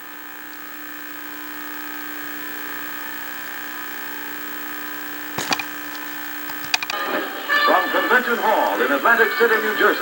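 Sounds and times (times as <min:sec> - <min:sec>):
electrical buzz from tv speaker: 0:00.0 - 0:10.0
sharp clicks: 0:05.4 - 0:07.0.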